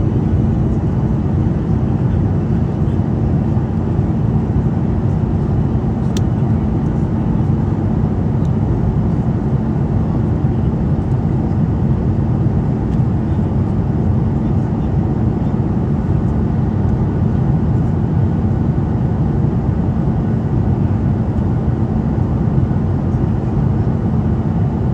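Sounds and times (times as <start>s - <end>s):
steady hum: 0.0s - 13.5s
jet engines roaring in cabin: 0.0s - 24.9s.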